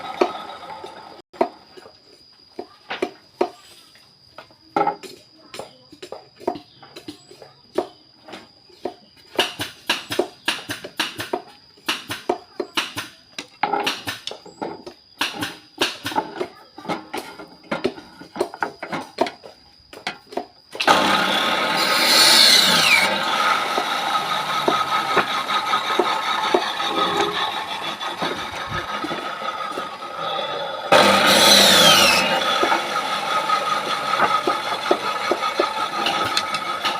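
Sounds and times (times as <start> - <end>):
power tool cutting wood: 20.8 - 36.9
knocks and clicks: 34.2 - 36.9.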